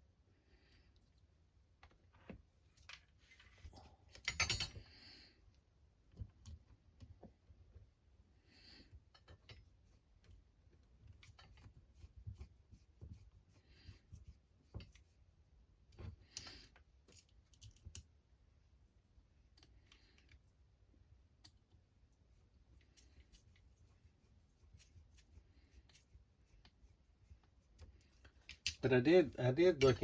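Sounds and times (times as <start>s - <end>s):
small parts and tools clicking: 2.7s - 4.9s, 15.9s - 18.2s, 19.5s - 20.5s, 27.8s - 28.8s.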